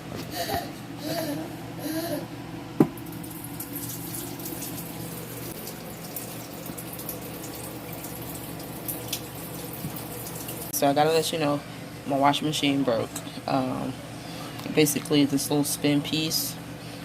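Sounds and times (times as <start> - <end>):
low steady hum: 0.0 - 17.0
water splashing in washing machine: 3.0 - 10.7.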